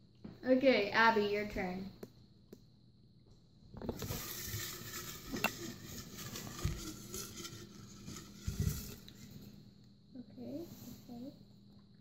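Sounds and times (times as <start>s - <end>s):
paper slips rustling in glass jar: 4.0s - 9.2s.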